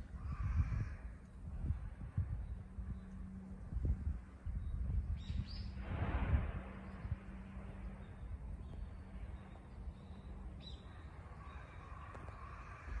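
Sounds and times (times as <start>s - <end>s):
low outdoor rumble: 0.0s - 13.0s
rush of noise: 5.7s - 8.0s
bird chirping: 8.0s - 12.5s.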